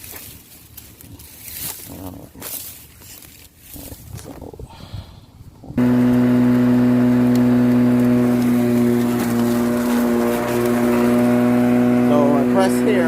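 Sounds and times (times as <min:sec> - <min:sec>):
electric lawn mower running: 0:05.8 - 0:13.0.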